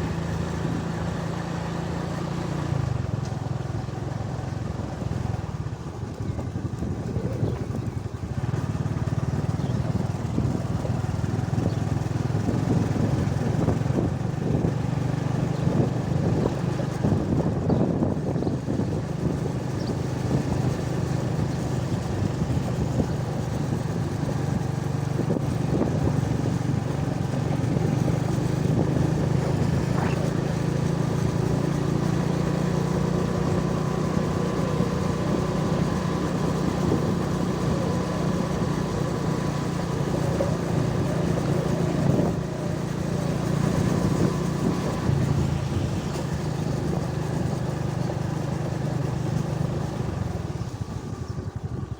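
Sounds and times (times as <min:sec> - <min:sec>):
road noise: 0:00.0 - 0:51.9
vehicle engine running: 0:00.0 - 0:51.9.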